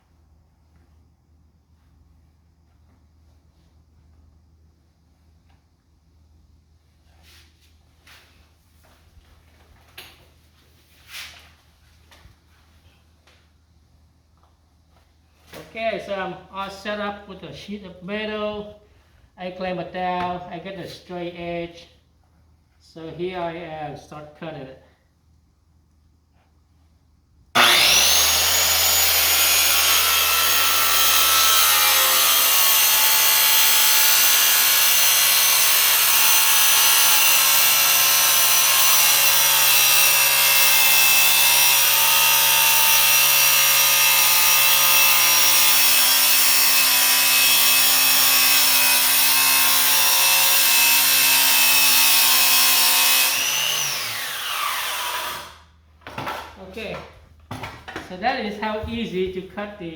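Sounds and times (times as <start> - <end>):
saw cutting sheet metal: 27.6 - 55.7.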